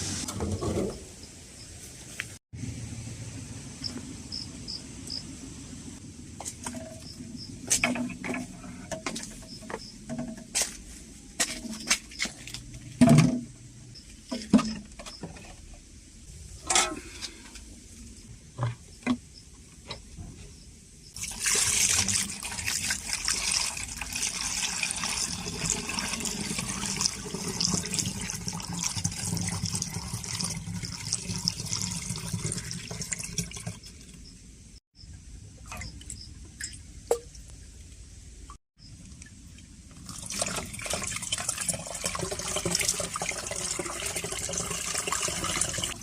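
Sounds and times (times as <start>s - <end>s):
water rushing into a container: 21.2s - 34.2s, 40.0s - 46.0s.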